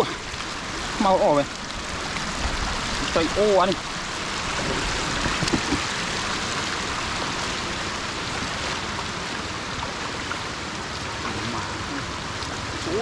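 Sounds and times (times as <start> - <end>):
floodwater rushing over road: 0.0 - 13.0.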